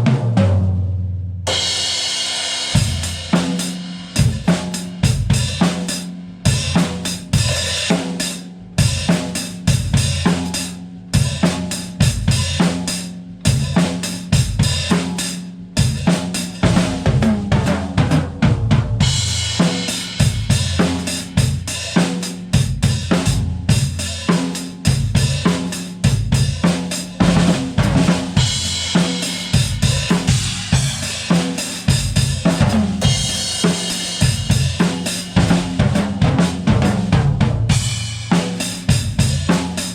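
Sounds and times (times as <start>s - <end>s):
bass drum: 2.7s - 8.0s, 8.8s - 15.2s, 15.8s - 39.9s
snare drum: 16.0s - 23.5s, 24.2s - 39.9s.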